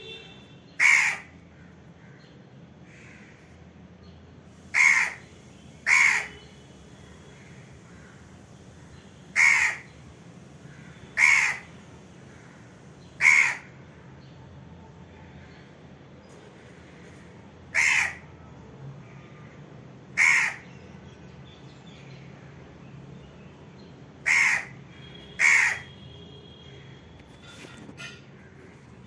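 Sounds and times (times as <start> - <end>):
crow cawing: 0.8 - 3.5, 4.7 - 6.5, 7.2 - 13.8, 16.6 - 18.3, 19.1 - 20.7, 24.2 - 26.0.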